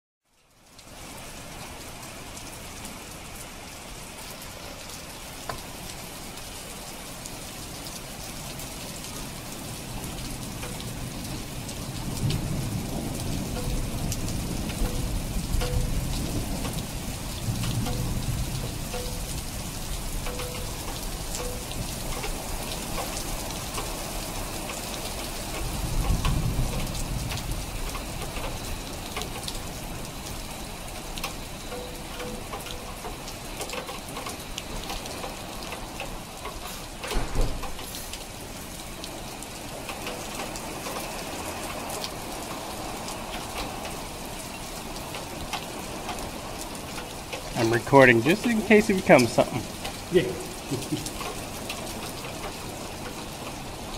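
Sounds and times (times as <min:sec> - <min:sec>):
raindrops ticking on hard surface: 0:00.3 - 0:53.9
steady rain falling: 0:00.3 - 0:53.9
loud low thump: 0:37.1 - 0:37.7.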